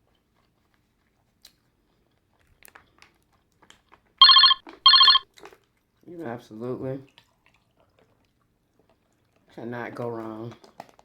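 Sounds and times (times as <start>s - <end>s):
telephone ringing: 4.2s - 5.2s.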